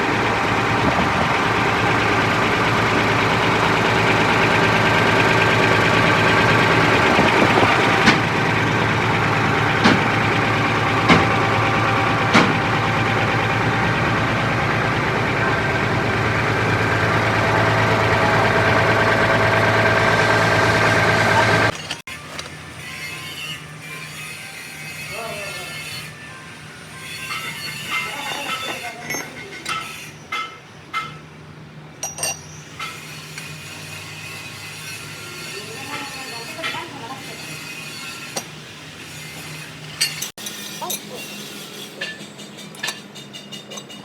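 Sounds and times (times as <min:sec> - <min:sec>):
motor running steadily: 0:00.0 - 0:21.8.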